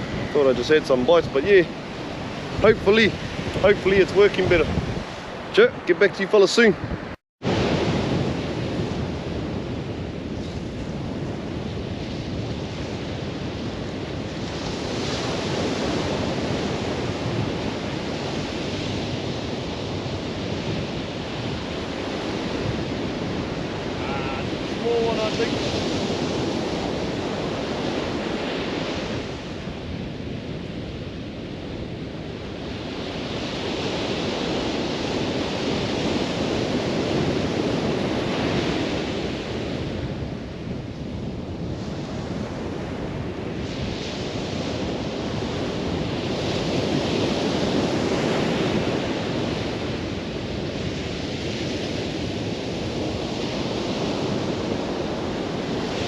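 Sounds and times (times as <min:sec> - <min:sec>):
ocean surf breaking: 0:00.0 - 0:56.0
wind buffeting microphone: 0:00.0 - 0:56.0.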